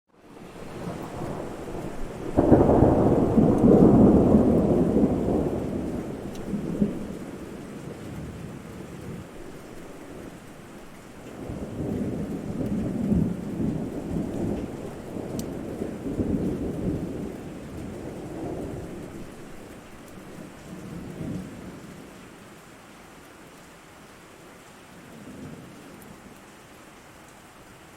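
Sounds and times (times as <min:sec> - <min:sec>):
steady rain: 0:00.1 - 0:27.9
thunder rumbling: 0:00.2 - 0:22.0.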